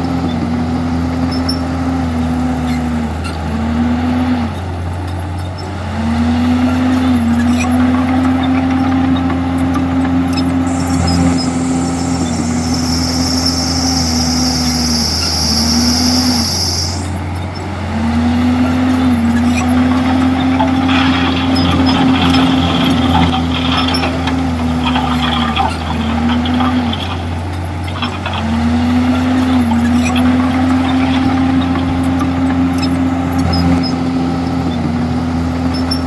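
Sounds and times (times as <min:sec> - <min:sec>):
bulldozer diesel engine under load: 0:00.0 - 0:36.0
clatter: 0:06.3 - 0:36.0.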